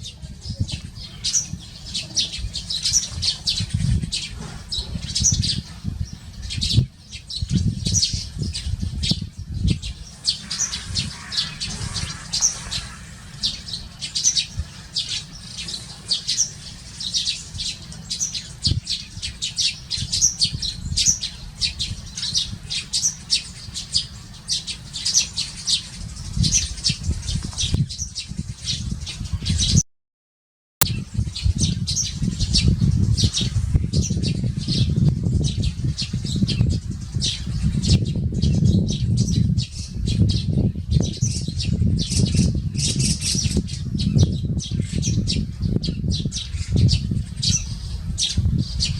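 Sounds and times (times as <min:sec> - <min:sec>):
sparrows chirping: 0:00.0 - 0:29.8, 0:30.8 - 0:48.9.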